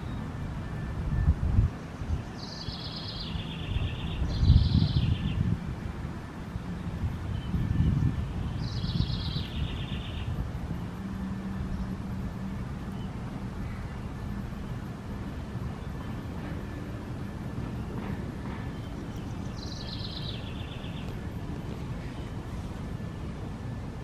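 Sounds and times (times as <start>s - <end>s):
songbird trilling: 2.3s - 5.5s, 7.3s - 10.4s, 17.8s - 21.2s.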